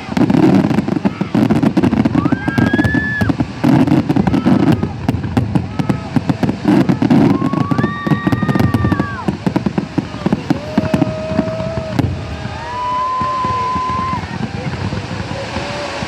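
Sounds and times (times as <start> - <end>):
crowd noise: 0.0 - 16.0
fireworks crackling and popping: 0.0 - 16.0
long whistle-like tones: 10.0 - 14.6.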